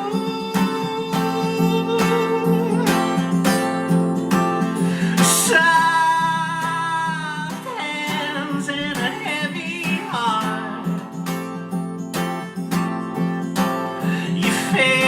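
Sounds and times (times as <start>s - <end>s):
acoustic guitar: 0.0s - 15.0s
strummed guitar chords: 0.0s - 15.0s
man singing wordless held notes: 5.0s - 11.0s, 14.1s - 15.0s.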